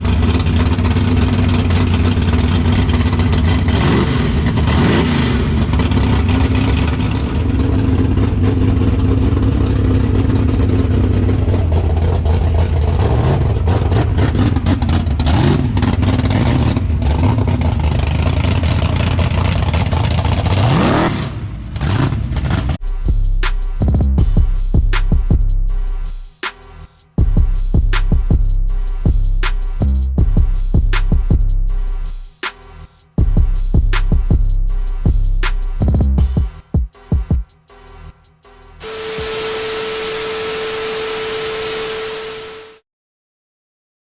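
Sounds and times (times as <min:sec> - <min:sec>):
car engine idling and revving: 0:00.0 - 0:26.2.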